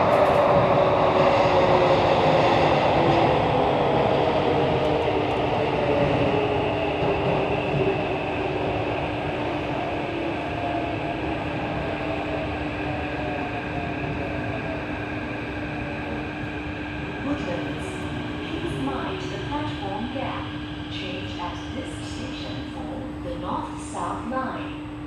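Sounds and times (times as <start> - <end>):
metro train rumbling in tunnel: 0.0 - 25.0.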